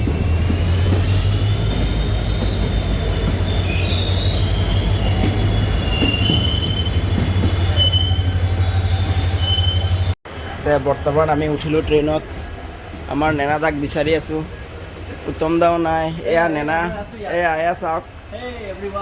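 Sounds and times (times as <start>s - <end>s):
train wheels squealing: 0.0s - 10.2s
heavy train rumble: 0.0s - 19.0s.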